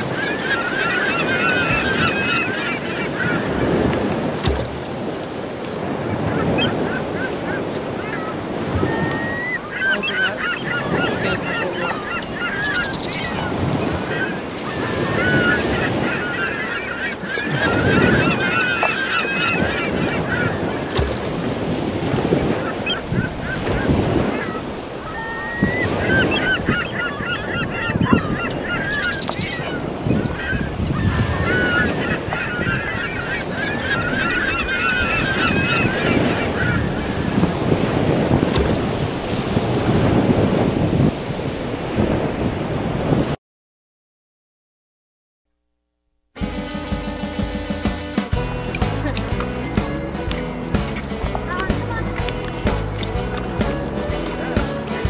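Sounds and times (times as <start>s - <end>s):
wind noise on microphone: 0.0s - 10.1s, 10.7s - 16.2s, 19.3s - 43.4s
birds chattering: 0.0s - 40.0s, 48.4s - 55.0s.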